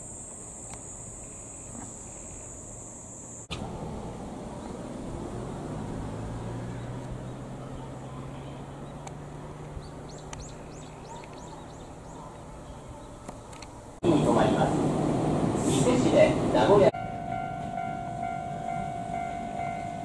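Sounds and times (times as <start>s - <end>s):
bird chirping: 6.3s - 14.0s.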